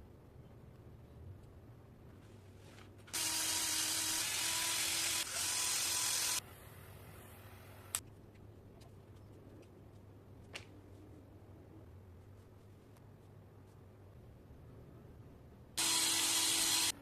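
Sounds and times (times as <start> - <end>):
workshop tool hissing: 15.8 - 17.0.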